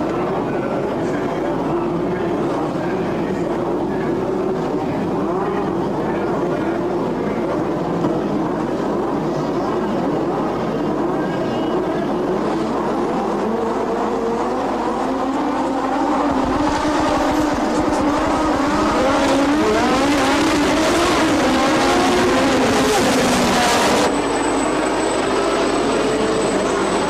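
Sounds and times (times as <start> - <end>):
racing car engines revving: 12.1 - 27.0.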